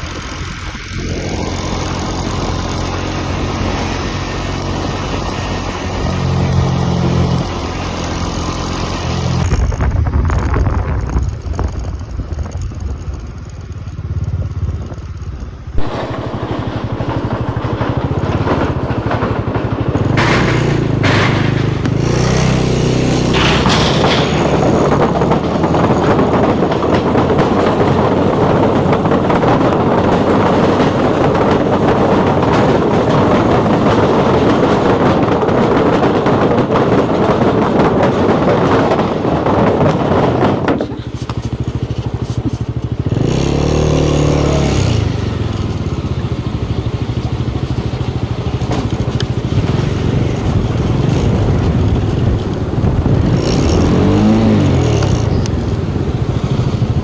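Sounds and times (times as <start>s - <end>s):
motorcycle engine: 0.0s - 57.0s
wind rushing: 14.5s - 40.9s.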